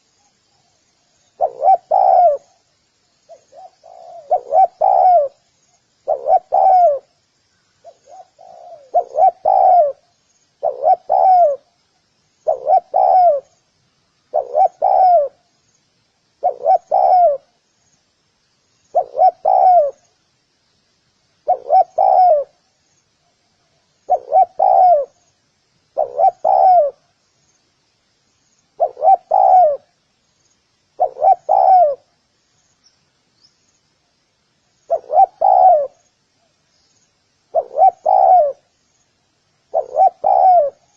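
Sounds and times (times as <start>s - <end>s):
faint high chirping: 0.0s - 20.4s, 21.4s - 40.9s
dove cooing: 1.3s - 2.6s, 3.3s - 5.4s, 6.0s - 7.2s, 7.8s - 10.0s, 10.6s - 11.8s, 12.4s - 13.6s, 14.3s - 15.4s, 16.4s - 17.5s, 18.9s - 20.1s, 21.4s - 22.6s, 24.0s - 25.2s, 25.9s - 27.0s, 28.8s - 30.0s, 31.0s - 32.1s, 34.9s - 36.0s, 37.5s - 38.7s, 39.7s - 40.9s.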